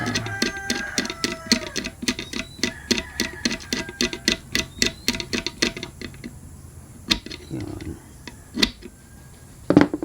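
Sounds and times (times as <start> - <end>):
clicking of small hard parts: 0.0 - 6.4, 7.0 - 9.0.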